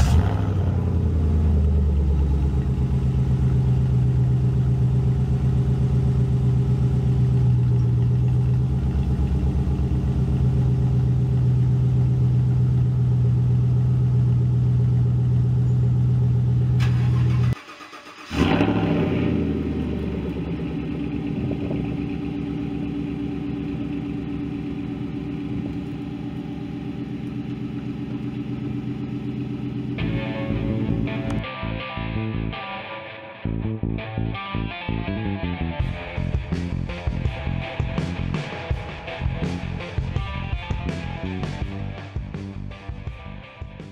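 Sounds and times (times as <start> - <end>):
engine starting and revving: 0.0 - 2.0, 16.7 - 22.6
truck engine idling: 0.0 - 31.4.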